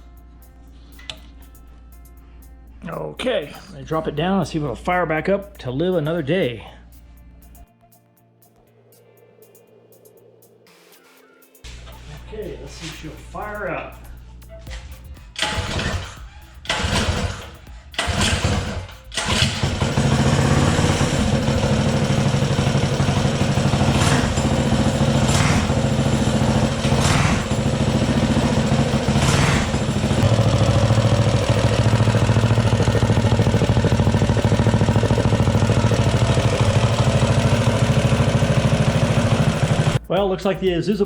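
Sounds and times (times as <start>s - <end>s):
small engine starting and running: 15.4s - 40.0s.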